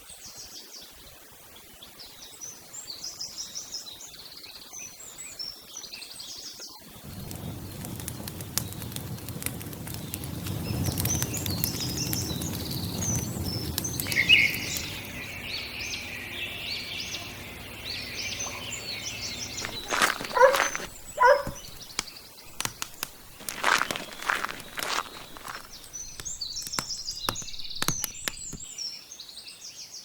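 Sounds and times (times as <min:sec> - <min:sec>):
small birds chirping: 0:06.2 - 0:29.8
clicks: 0:19.6 - 0:28.7.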